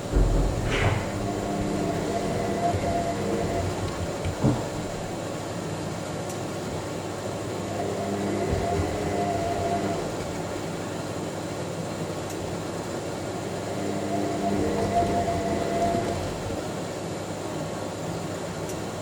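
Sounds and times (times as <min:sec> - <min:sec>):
motor whine: 0:00.0 - 0:05.2, 0:07.5 - 0:10.6, 0:13.4 - 0:16.7
dull knock of tumbling laundry: 0:00.0 - 0:05.3
washing machine drum rumbling: 0:00.0 - 0:05.7, 0:08.4 - 0:10.9.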